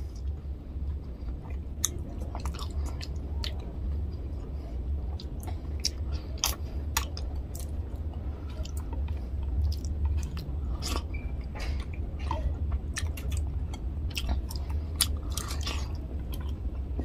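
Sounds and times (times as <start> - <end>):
steady low hum: 0.0 - 17.0
wet chewing: 1.0 - 3.6, 5.1 - 17.0
lip smacks and mouth clicks: 5.1 - 11.2.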